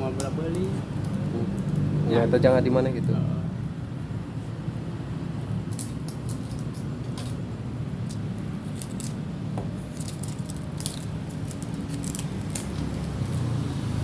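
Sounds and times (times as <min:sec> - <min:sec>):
packaging crinkling: 0:09.8 - 0:13.6.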